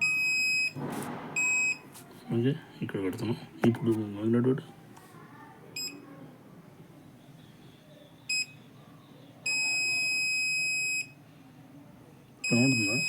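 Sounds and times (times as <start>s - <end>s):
electronic beeper tone: 12.4s - 13.0s.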